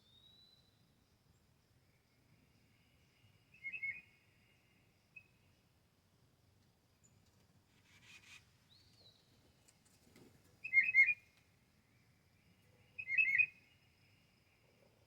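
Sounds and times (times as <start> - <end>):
songbird whistling song: 0.0 - 0.8, 3.5 - 4.2, 10.6 - 11.3, 13.0 - 13.8
faint bird chirp: 0.0 - 5.7, 7.0 - 9.4, 10.6 - 15.0.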